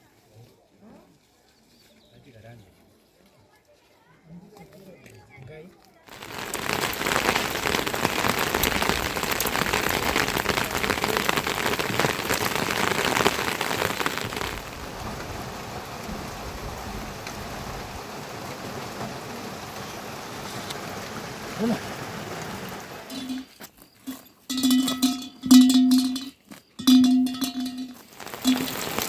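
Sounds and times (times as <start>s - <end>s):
heavy rain falling: 6.1s - 23.6s, 27.0s - 29.0s.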